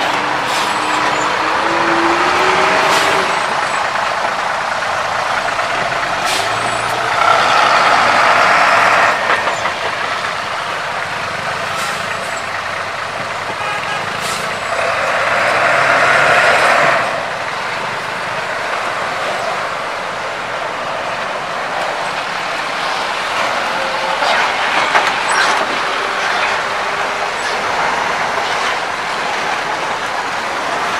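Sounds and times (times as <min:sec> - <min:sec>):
heavy trucks driving slowly: 0:00.0 - 0:30.9.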